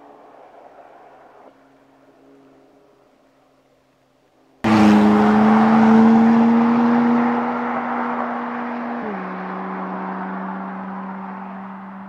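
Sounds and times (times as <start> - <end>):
car engine accelerating: 4.6 - 12.0.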